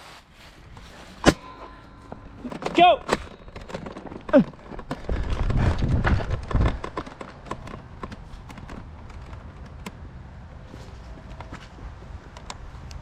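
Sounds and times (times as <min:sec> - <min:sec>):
scattered clicks and taps: 0:06.0 - 0:10.0.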